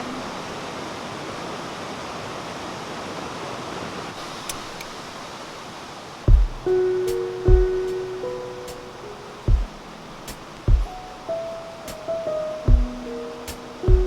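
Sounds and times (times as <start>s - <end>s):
stream water rushing: 0.0s - 14.0s
low thump: 6.3s - 6.7s, 9.5s - 9.8s, 10.7s - 11.0s, 12.7s - 13.0s
music: 6.3s - 14.0s.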